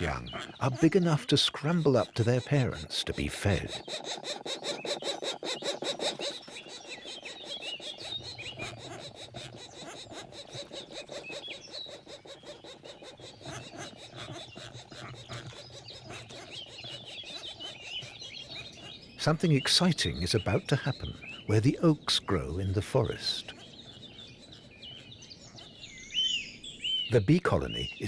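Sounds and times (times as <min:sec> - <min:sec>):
woodpecker nestlings begging calls: 0:00.0 - 0:28.0
higher chirps: 0:19.2 - 0:23.5, 0:25.8 - 0:28.0.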